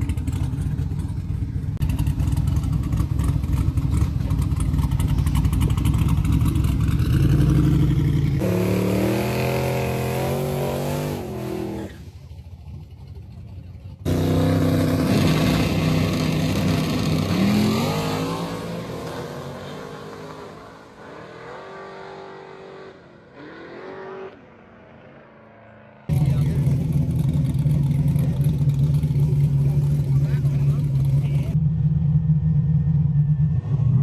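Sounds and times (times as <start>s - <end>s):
engine running steadily close by: 0.0s - 8.8s, 26.1s - 34.0s
race car engine revving: 0.0s - 13.3s, 14.0s - 34.0s.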